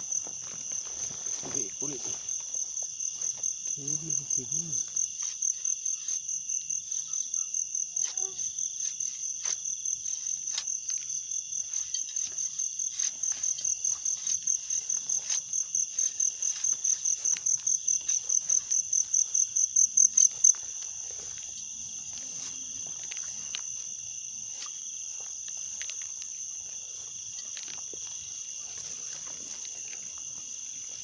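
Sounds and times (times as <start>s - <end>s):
cricket calling in pulses: 0.0s - 31.0s.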